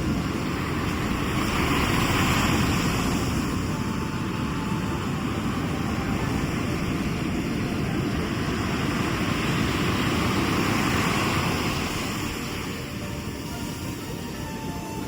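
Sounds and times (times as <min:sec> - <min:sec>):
sea surf washing ashore: 0:00.0 - 0:15.0.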